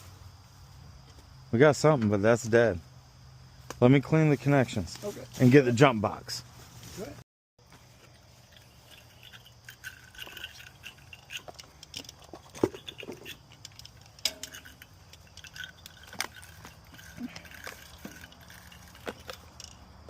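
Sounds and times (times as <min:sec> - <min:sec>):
hand tools clicking and clinking: 0:08.0 - 0:20.0.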